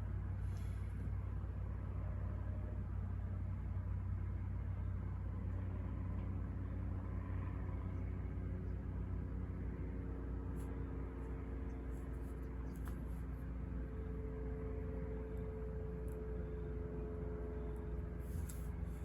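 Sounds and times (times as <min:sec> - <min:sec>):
faint hum: 0:00.0 - 0:19.0
low ambient rumble: 0:00.0 - 0:19.0
faint soft scratches: 0:11.9 - 0:13.4, 0:18.2 - 0:19.0.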